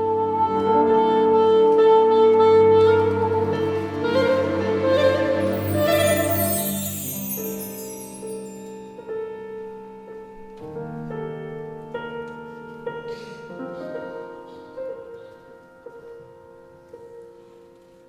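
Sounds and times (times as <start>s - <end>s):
classical piano concerto passage: 0.0s - 8.8s, 10.6s - 18.0s
sustained tones: 5.4s - 8.8s.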